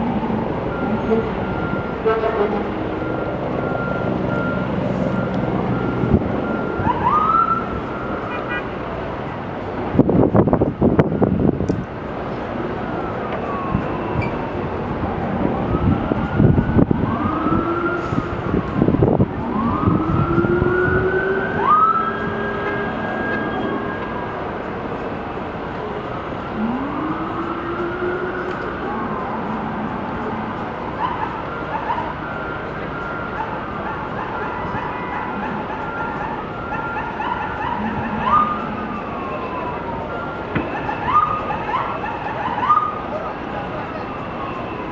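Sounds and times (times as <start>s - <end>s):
emergency siren wailing: 0.0s - 44.9s
low street and vehicle noise: 0.0s - 44.9s.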